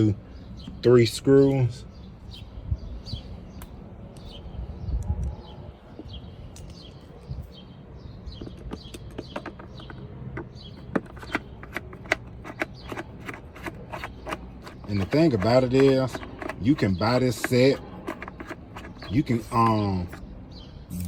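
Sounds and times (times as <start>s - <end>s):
clicks and taps on plastic: 8.4s - 16.8s.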